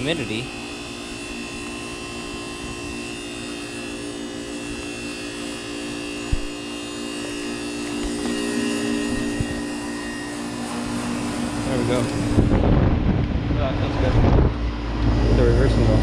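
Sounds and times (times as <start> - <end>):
heat pump buzzing hum: 0.0 - 16.0.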